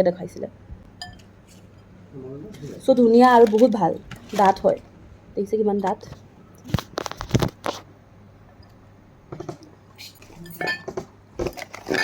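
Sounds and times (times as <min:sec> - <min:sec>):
glass bowls clinking together: 0:10.4 - 0:11.0.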